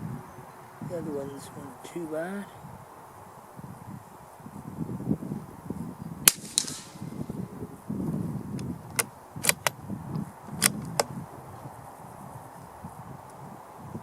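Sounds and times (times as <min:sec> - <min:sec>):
rifle shot with echo: 0:06.2 - 0:07.2
short metallic clicks: 0:08.9 - 0:09.8.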